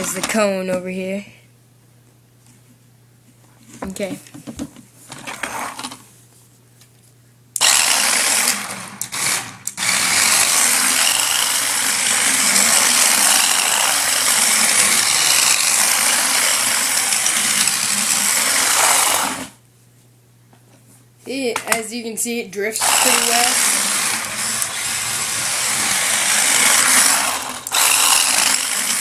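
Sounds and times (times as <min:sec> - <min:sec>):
toy car electric motor whirring: 0:05.3 - 0:06.0, 0:07.6 - 0:19.6, 0:22.8 - 0:29.0.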